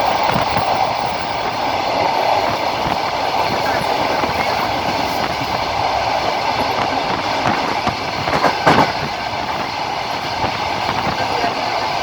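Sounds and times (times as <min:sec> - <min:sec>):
train rolling rumble: 0:00.0 - 0:12.0
train wheels clacking over rail joints: 0:02.4 - 0:12.0.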